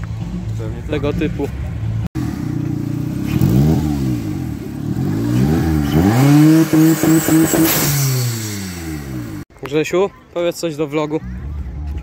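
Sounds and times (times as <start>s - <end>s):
car engine revving: 2.2s - 9.5s.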